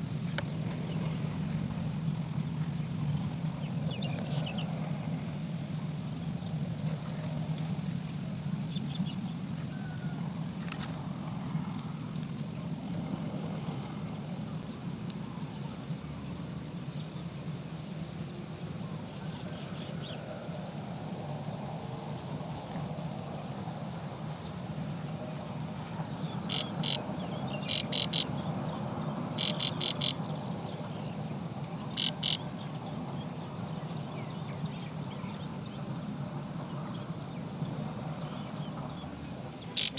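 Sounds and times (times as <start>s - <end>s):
small bird chirping: 26.3s - 28.3s, 29.2s - 30.2s, 32.0s - 35.3s, 39.6s - 39.9s.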